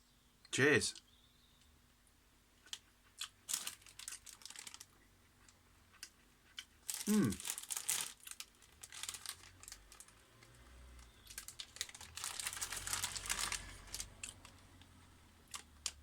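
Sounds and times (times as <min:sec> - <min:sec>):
close-up chewing: 0:02.6 - 0:16.0
plastic packet crinkling: 0:03.2 - 0:04.9, 0:06.8 - 0:16.0.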